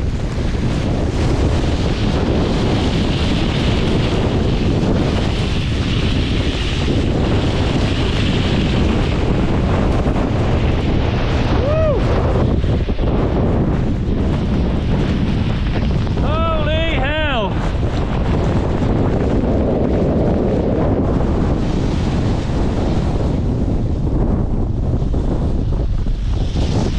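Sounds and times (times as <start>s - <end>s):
storm wind blasting microphone: 0.0s - 26.9s.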